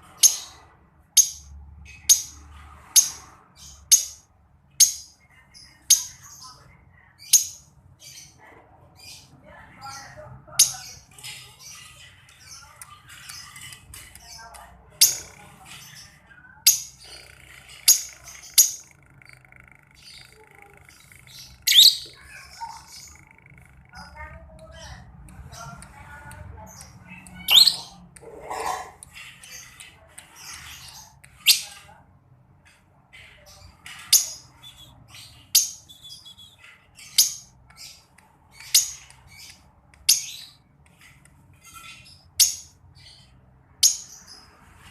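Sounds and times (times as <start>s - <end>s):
lovebird chirping: 1.2s - 2.4s, 9.8s - 25.8s, 26.6s - 29.8s, 33.4s - 40.6s
bird squawking: 15.0s - 24.9s, 26.8s - 29.7s.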